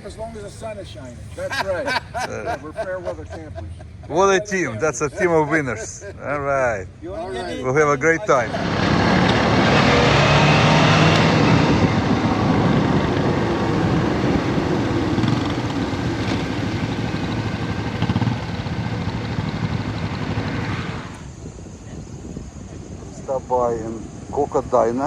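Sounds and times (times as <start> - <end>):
motorcycle engines running: 8.0 - 25.0.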